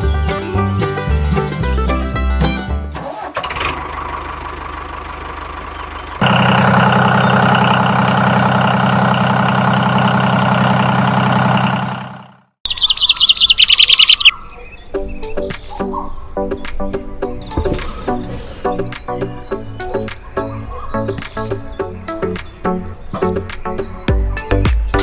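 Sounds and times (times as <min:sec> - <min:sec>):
small engine running: 0:03.1 - 0:12.5
rapid high bird chirps: 0:09.5 - 0:10.5, 0:12.6 - 0:25.0.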